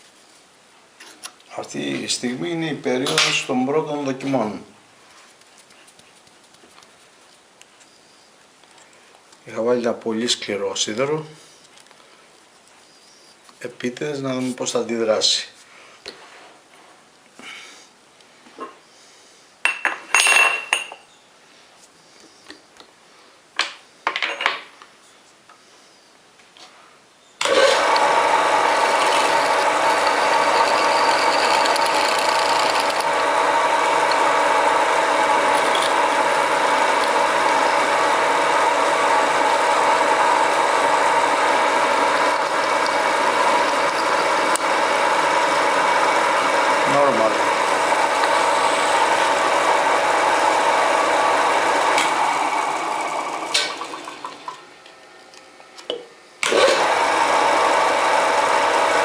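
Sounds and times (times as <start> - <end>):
lathe motor whining: 27.4 - 54.9, 56.4 - 59.0.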